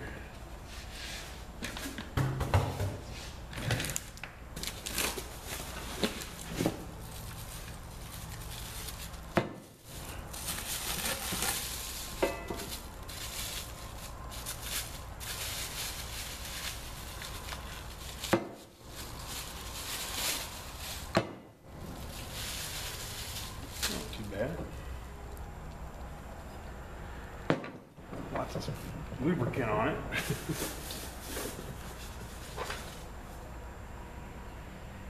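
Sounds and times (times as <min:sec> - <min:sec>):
packing material crinkling: 0:03.6 - 0:24.6.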